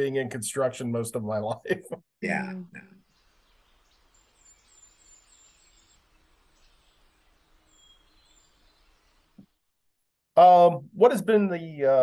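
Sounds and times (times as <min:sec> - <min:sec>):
faint bird chirps: 0:02.8 - 0:09.7.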